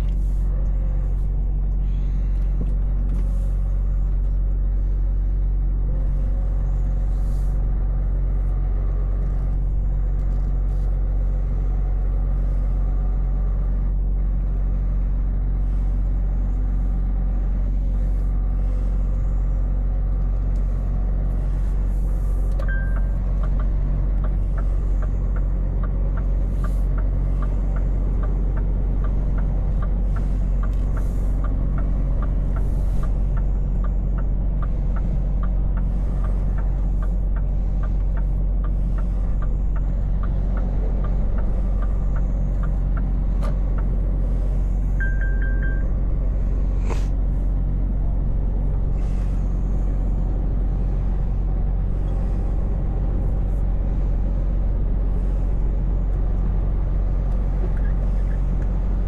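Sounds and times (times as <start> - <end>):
truck engine running: 0.0 - 59.0
regular ticking: 22.7 - 44.2
short beep: 45.0 - 45.9.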